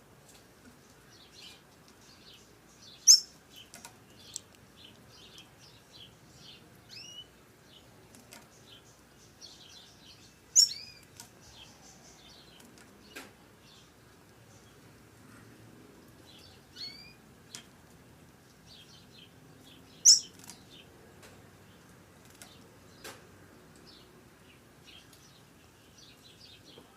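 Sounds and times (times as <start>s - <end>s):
bird giving short high chirps: 20.1s - 20.4s.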